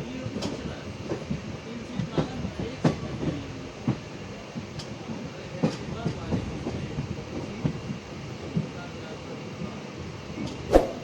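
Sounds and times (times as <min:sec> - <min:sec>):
train rumble: 0:00.0 - 0:10.8.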